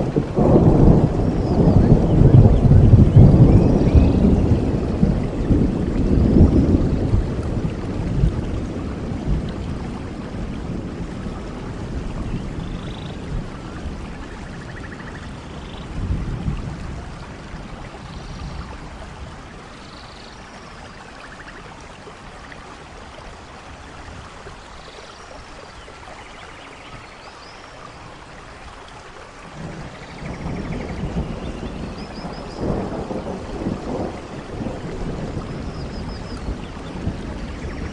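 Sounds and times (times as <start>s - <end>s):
thunder rumbling: 0.0s - 19.8s, 29.4s - 37.9s
steady rain falling: 0.0s - 37.9s.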